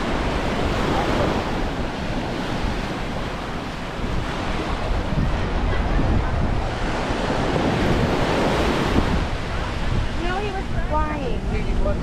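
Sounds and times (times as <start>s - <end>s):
surf washing onto beach: 0.0s - 12.0s
wind buffeting microphone: 0.0s - 12.0s.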